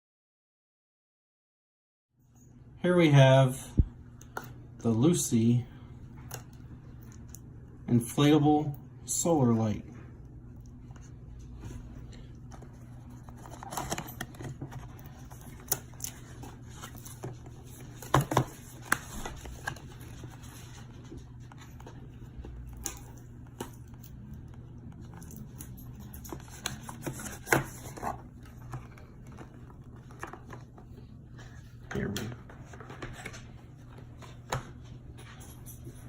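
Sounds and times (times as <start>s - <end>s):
low steady hum: 2.2s - 36.0s
packaging being opened: 12.5s - 24.0s.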